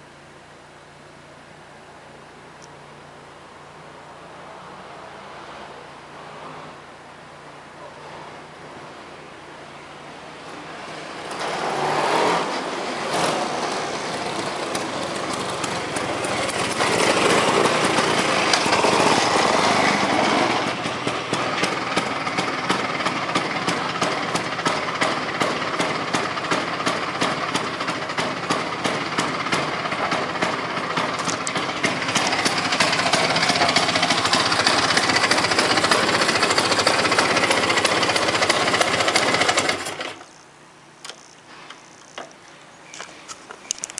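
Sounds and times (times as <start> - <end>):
two-stroke scooter engine running: 11.2 - 40.4.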